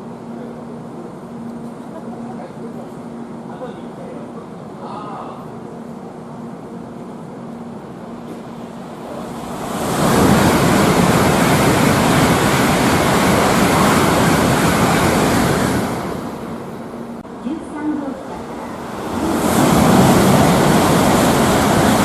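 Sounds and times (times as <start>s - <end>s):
bullet train rushing past: 5.6s - 22.0s.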